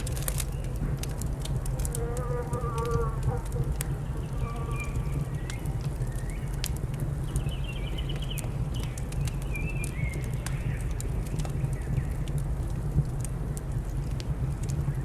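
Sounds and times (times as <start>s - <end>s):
wood fire crackling and popping: 0.0s - 15.0s
small birds chirping: 3.8s - 12.4s.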